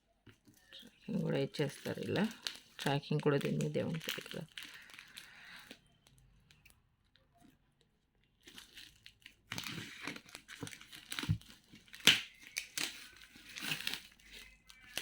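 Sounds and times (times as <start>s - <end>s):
wrapping crinkling: 0.3s - 7.3s, 8.4s - 15.0s
wrapping ripping: 1.6s - 5.8s, 8.4s - 15.0s.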